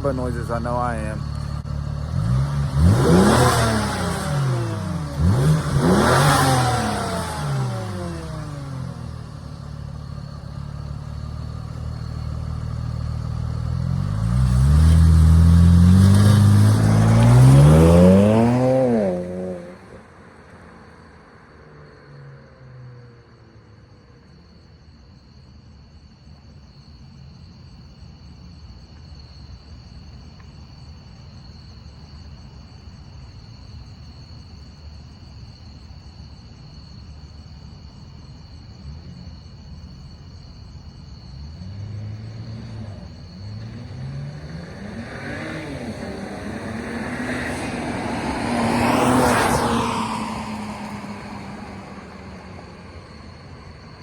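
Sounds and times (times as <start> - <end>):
car engine revving with whine: 0.0 - 20.2, 37.0 - 54.0.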